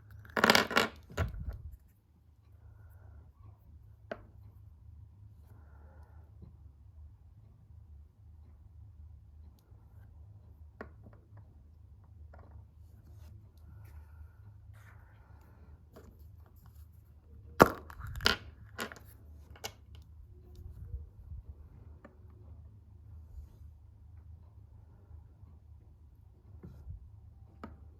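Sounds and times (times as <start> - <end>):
steady low hum: 1.3 - 17.6, 18.5 - 27.9.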